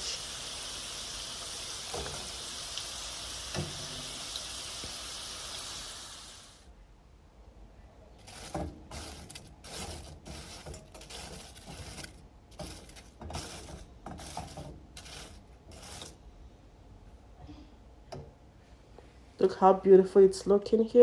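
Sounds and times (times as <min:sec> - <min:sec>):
fries scraping against container: 0:00.0 - 0:06.6, 0:08.2 - 0:16.2.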